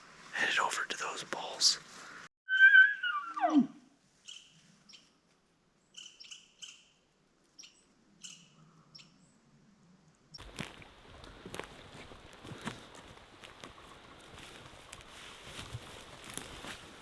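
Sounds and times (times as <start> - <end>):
small bird chirping: 4.2 - 5.2, 5.8 - 9.3
rustling noise: 10.4 - 17.0.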